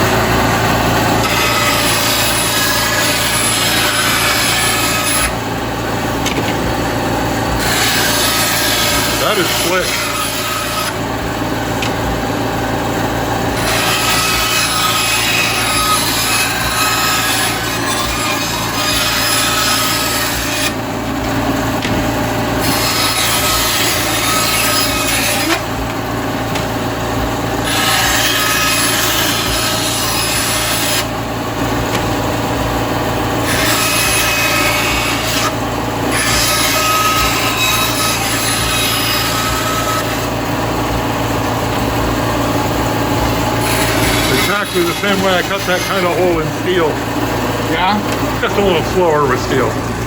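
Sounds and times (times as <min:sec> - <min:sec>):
steady low hum: 0:00.0 - 0:38.4.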